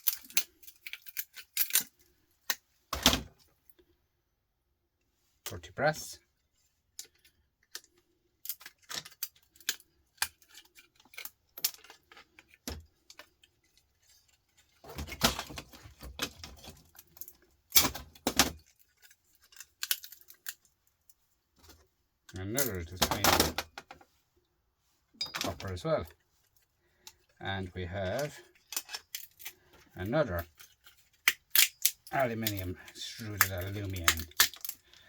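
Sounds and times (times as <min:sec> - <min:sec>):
metal parts rattling: 0:00.0 - 0:02.1, 0:07.0 - 0:20.8, 0:25.2 - 0:27.4, 0:28.0 - 0:35.0
metal parts and tools clinking: 0:00.0 - 0:02.6, 0:07.0 - 0:21.2, 0:25.2 - 0:27.4, 0:28.0 - 0:35.0.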